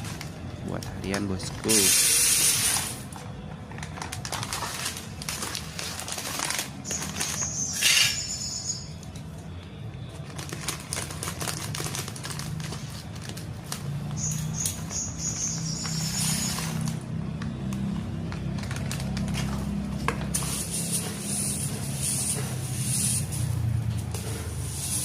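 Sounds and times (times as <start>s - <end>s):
canary chirping: 6.8s - 9.0s, 14.2s - 16.9s.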